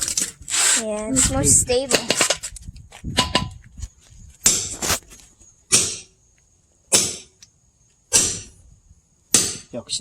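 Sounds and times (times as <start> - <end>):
hammer striking steel wedge: 5.7 - 6.1, 6.9 - 7.3, 8.1 - 8.5, 9.3 - 9.7.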